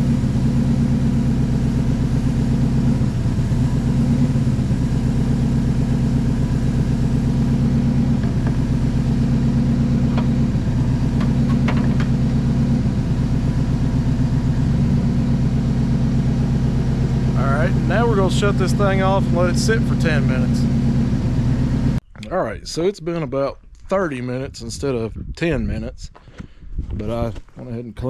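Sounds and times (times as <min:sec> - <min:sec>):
truck engine at raised idle: 0:00.0 - 0:22.0.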